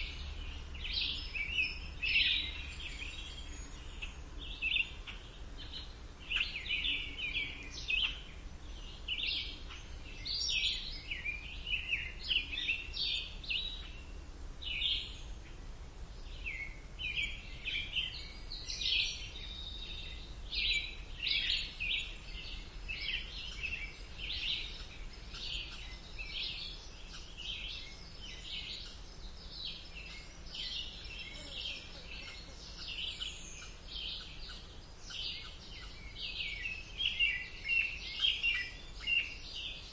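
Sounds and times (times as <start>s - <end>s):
birds singing: 0.0s - 39.9s
faint low background rumble: 0.0s - 39.9s.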